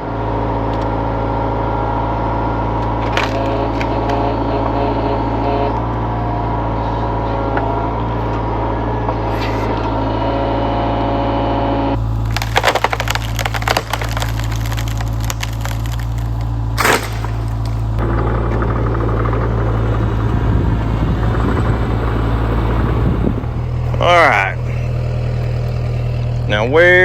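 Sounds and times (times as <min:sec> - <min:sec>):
heavy machine engine running: 0:00.0 - 0:27.0
wood cracking and splintering: 0:02.8 - 0:04.2, 0:12.0 - 0:22.8.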